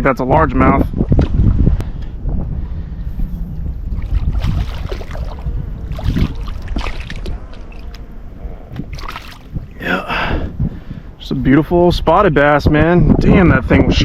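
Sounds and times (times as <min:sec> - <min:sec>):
wind rumble on microphone: 0:00.0 - 0:14.0
water splashing: 0:03.8 - 0:10.1.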